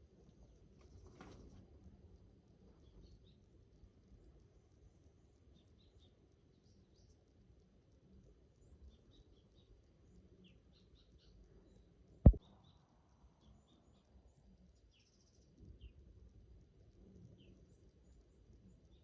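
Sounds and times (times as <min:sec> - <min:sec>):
faint bird chirps: 0:08.0 - 0:16.1.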